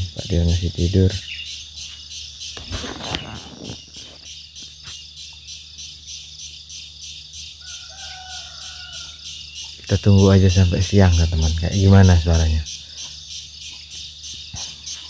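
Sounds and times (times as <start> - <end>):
high-pitched insect-like pulsing: 0.0 - 15.0
rustling: 2.6 - 4.3.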